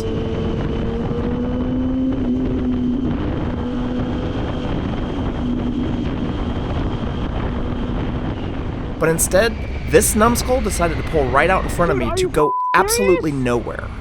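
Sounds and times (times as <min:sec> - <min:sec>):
motorcycle engine cruising: 0:00.0 - 0:05.1
wind noise on microphone: 0:00.0 - 0:11.3.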